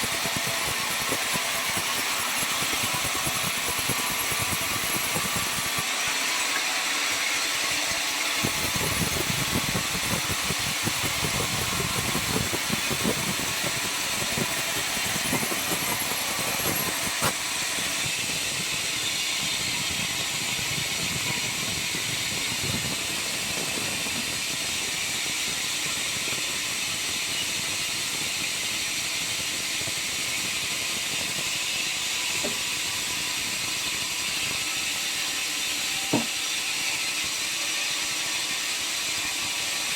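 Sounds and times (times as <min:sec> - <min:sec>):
circular saw cutting log: 0:00.0 - 0:18.5.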